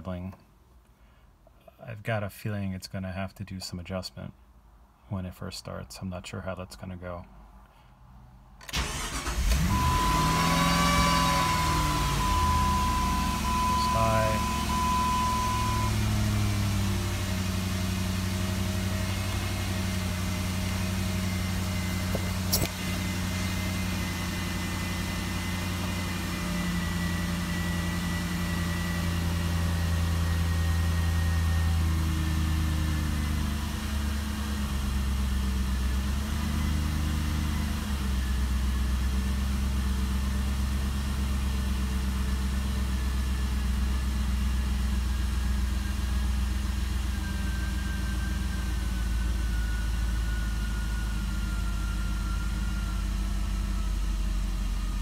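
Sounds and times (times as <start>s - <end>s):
car engine idling: 8.7s - 36.0s, 38.4s - 55.0s.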